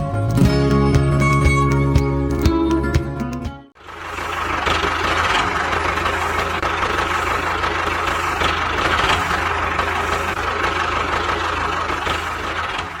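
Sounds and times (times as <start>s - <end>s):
engine-like running sound: 3.8s - 13.0s.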